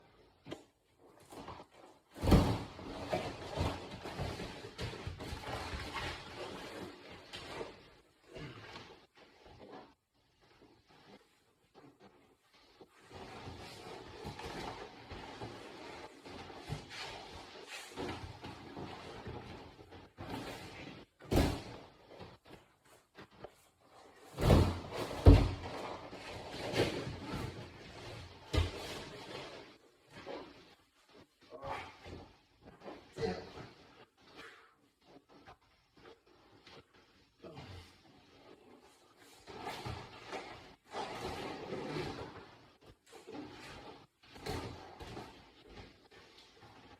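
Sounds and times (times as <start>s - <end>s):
thumps and scuffling on mat: 0.4s - 46.9s
bodies thudding on a mat: 2.1s - 6.7s, 24.2s - 29.4s.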